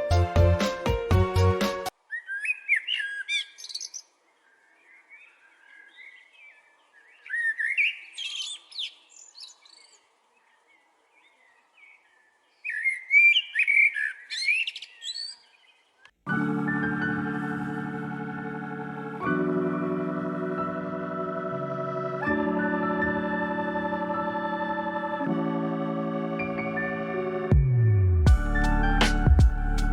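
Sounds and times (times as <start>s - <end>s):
music: 0.0s - 1.9s, 16.3s - 29.9s
songbird whistling song: 2.1s - 10.0s, 11.2s - 15.6s
soft bird twittering: 2.1s - 16.1s.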